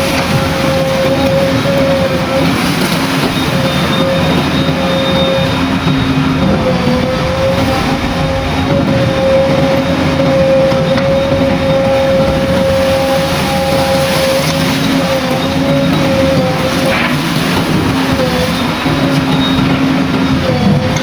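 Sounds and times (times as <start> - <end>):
diesel engine with high whine: 0.0 - 21.0.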